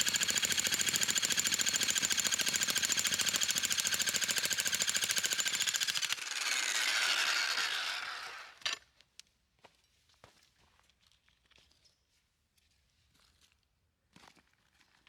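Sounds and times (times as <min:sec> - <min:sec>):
jackhammer hammering: 0:00.0 - 0:08.7.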